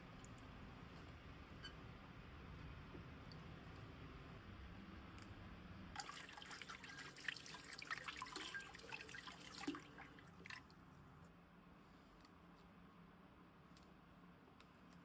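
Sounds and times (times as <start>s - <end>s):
tap water splashing in sink: 6.0s - 10.6s.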